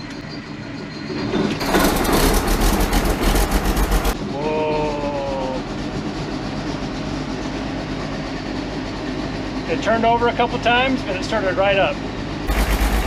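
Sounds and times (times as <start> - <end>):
diesel engine starting and running: 0.0 - 13.0
high whine: 12.5 - 13.0.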